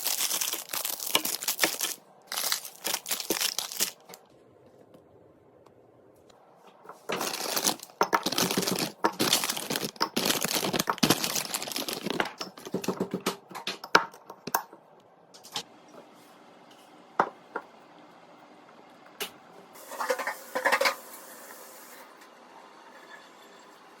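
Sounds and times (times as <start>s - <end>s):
plastic packaging crinkling: 0.0s - 4.2s, 7.1s - 13.0s.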